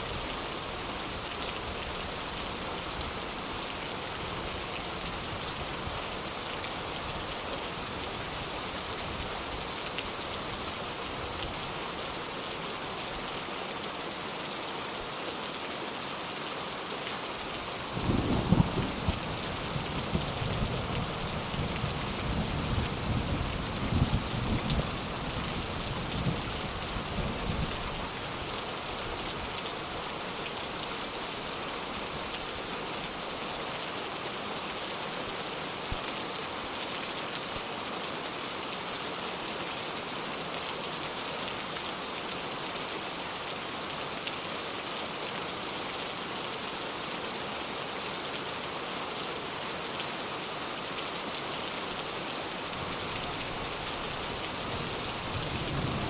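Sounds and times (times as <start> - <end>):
steady rain falling: 0.0 - 56.0
thunder rumble: 18.0 - 19.2.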